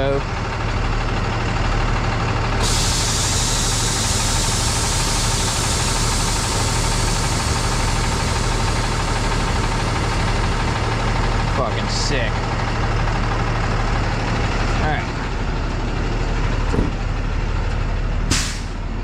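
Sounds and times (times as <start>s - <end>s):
diesel engine idling: 0.0s - 19.0s
compressed air hissing: 2.6s - 10.2s, 18.3s - 18.7s.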